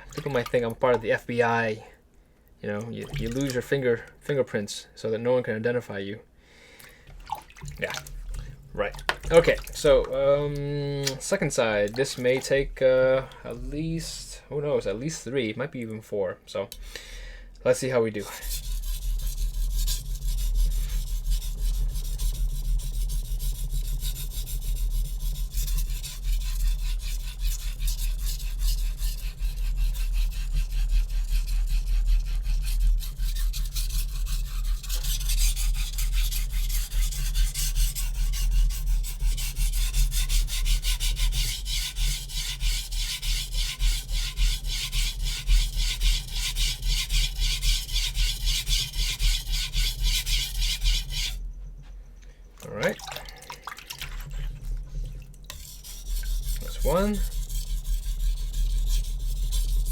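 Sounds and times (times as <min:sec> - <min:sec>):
knife scraping on whetstone: 0:18.2 - 0:51.4, 0:54.1 - 0:59.9.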